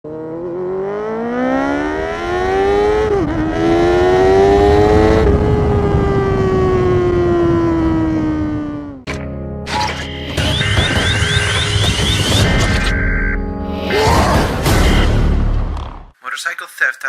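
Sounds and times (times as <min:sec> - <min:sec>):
motorcycle engine accelerating: 0:00.0 - 0:09.1.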